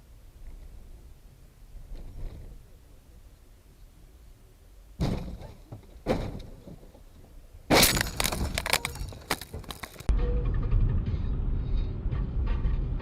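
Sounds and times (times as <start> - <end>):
sharp vehicle impacts: 5.0 - 7.0, 7.7 - 11.5
breaking glass and debris: 7.7 - 10.1
vehicle crash: 7.7 - 13.0.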